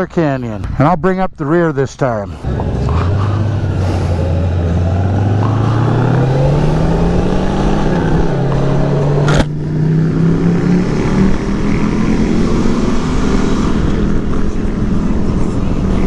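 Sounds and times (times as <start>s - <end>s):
motorcycle engine accelerating: 2.4s - 16.0s.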